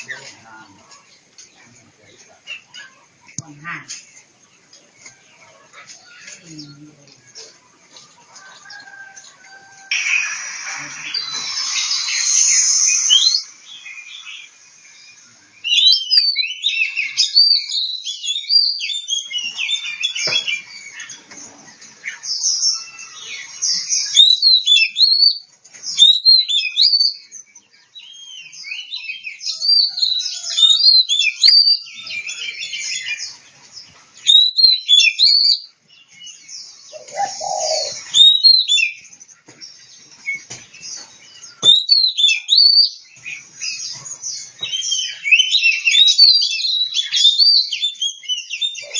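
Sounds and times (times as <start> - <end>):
bird singing whistled phrases: 9.9 - 14.5, 15.6 - 20.7, 22.6 - 27.3, 28.0 - 32.6, 34.2 - 35.7, 37.0 - 39.0, 41.5 - 43.0, 44.6 - 48.9.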